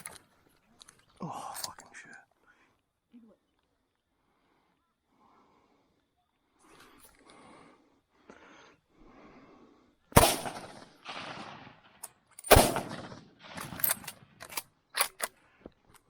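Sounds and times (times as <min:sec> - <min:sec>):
gunshots with echo: 0:10.2 - 0:14.4.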